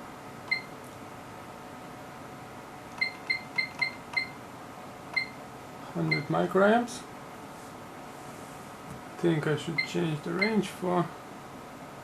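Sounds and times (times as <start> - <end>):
high-pitched key beeps: 3.0 - 4.4, 5.2 - 5.4.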